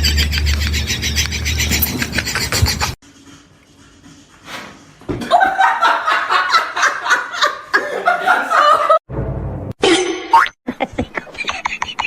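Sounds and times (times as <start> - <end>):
person laughing: 5.2 - 9.0.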